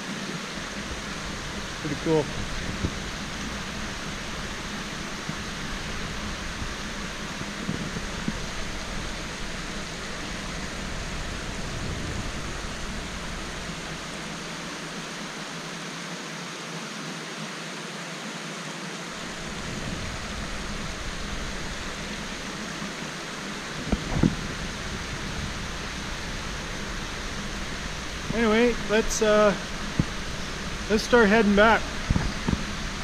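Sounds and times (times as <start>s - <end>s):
creek water flowing: 0.0s - 33.0s
low rumble: 0.4s - 15.4s, 19.2s - 33.0s.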